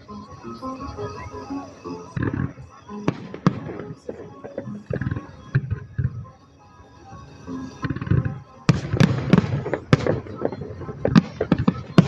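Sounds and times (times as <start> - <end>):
music: 0.0 - 12.0
fireworks booming: 2.2 - 6.2, 7.8 - 12.0.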